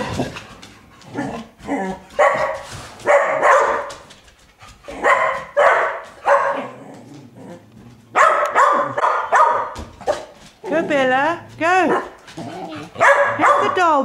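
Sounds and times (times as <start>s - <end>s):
dog barking: 2.1s - 4.0s, 4.9s - 6.8s, 8.1s - 10.4s, 12.8s - 14.0s.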